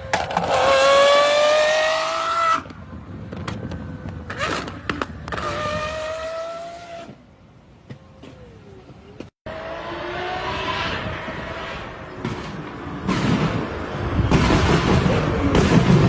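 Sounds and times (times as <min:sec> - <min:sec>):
car engine revving: 0:00.1 - 0:02.7, 0:09.5 - 0:16.0.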